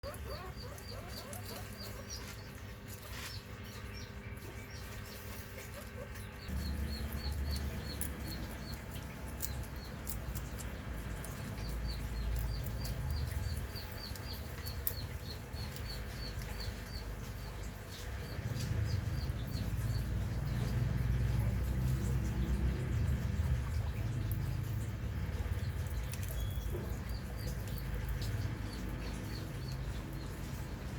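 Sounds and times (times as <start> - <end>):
small animal chirping: 0.0 - 20.8, 21.4 - 30.9.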